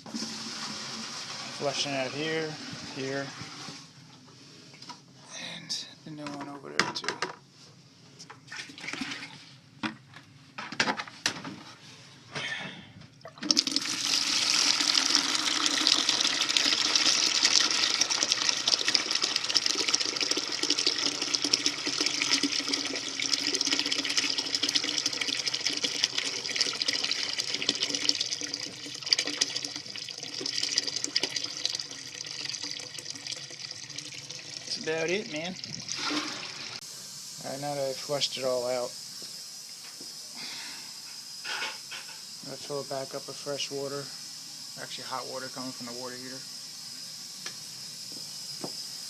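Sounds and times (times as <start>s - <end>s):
water rushing from drain: 0.0s - 3.8s, 13.3s - 36.8s.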